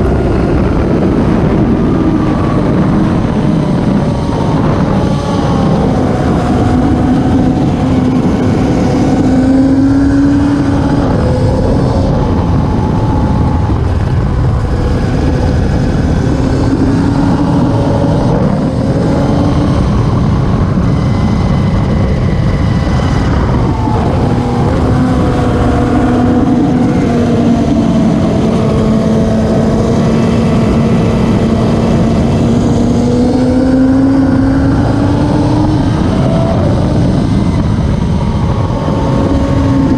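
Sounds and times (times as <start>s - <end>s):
racing motorcycle engines: 0.0s - 39.9s.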